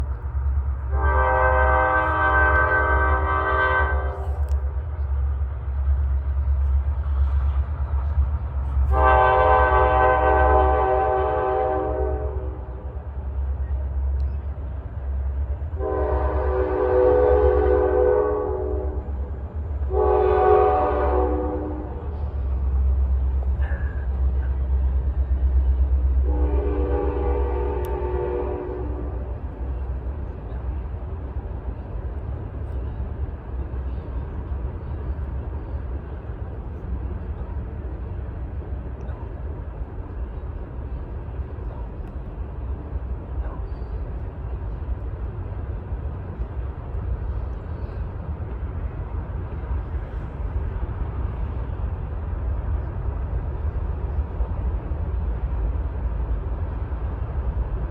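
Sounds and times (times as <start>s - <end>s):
locomotive engine rumble: 0.0s - 57.9s
train rolling by: 0.0s - 57.9s
locomotive horn: 0.8s - 4.6s, 8.8s - 13.0s, 15.7s - 22.2s, 26.2s - 29.5s.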